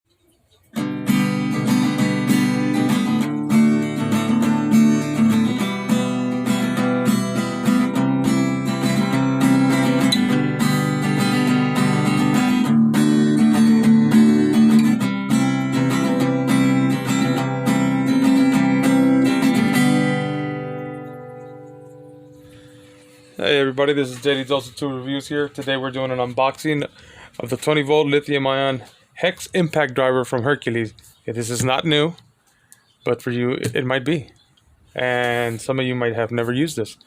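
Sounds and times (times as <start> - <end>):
strummed acoustic guitar chords: 0.7 - 28.7.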